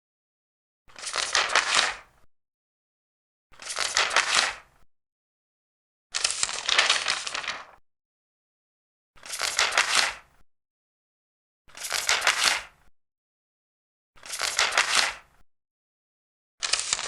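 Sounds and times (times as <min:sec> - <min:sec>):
paper pages rustling: 0:01.0 - 0:02.1, 0:03.6 - 0:04.7, 0:06.2 - 0:07.8, 0:09.2 - 0:10.2, 0:11.8 - 0:12.7, 0:14.2 - 0:15.2, 0:16.6 - 0:17.0.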